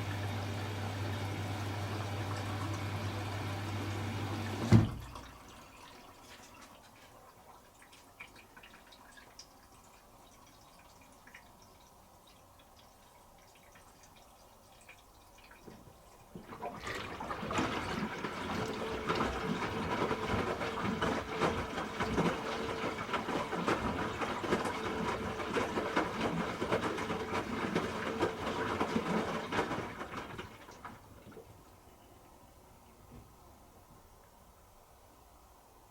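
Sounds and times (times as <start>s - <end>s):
water rushing into washing machine: 0.0s - 31.9s
water sloshing in drum: 4.4s - 32.0s.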